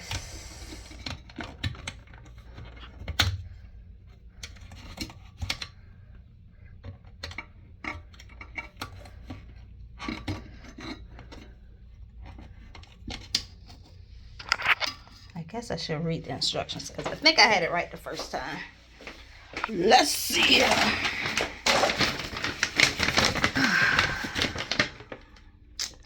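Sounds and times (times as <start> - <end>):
plastic parts clicking and knocking: 0.9 - 3.6, 4.3 - 5.8, 6.8 - 15.3.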